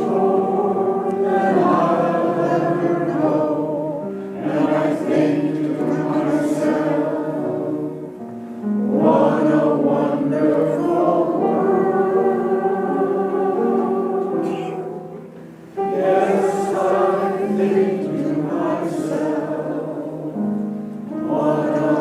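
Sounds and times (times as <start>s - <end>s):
mixed choir singing: 0.0s - 22.0s.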